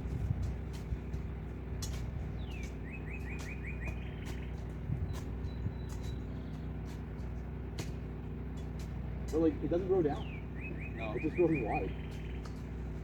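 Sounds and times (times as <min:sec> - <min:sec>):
engine idling hum: 0:00.0 - 0:13.0
songbird chirping: 0:01.9 - 0:07.4, 0:08.8 - 0:13.0.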